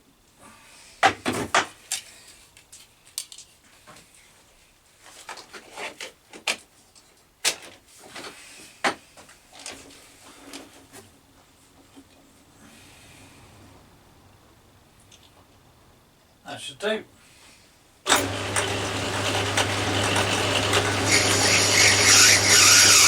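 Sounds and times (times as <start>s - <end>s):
tools knocking and clicking at lathe: 19.6s - 23.0s.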